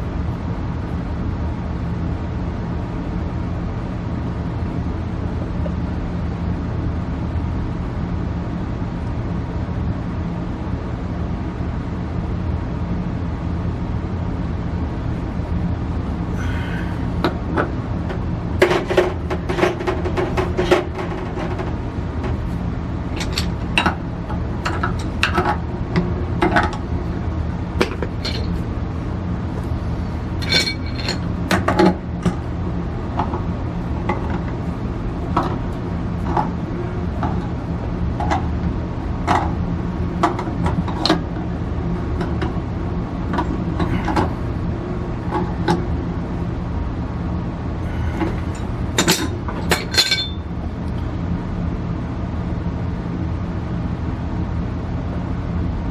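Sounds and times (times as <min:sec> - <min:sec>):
steady low hum: 0:00.0 - 0:55.9
metal tools clinking: 0:27.9 - 0:28.6, 0:30.4 - 0:31.2, 0:49.0 - 0:50.4.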